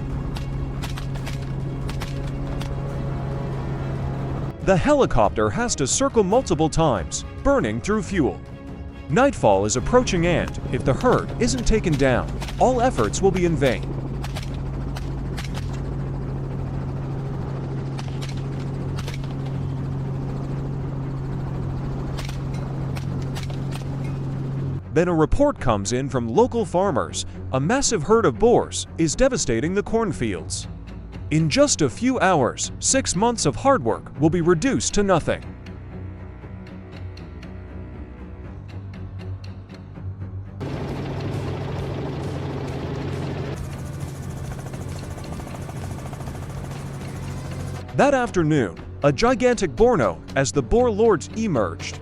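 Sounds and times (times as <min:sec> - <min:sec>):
background music: 0:00.0 - 0:52.0
helicopter rotor and engine hum: 0:00.0 - 0:52.0.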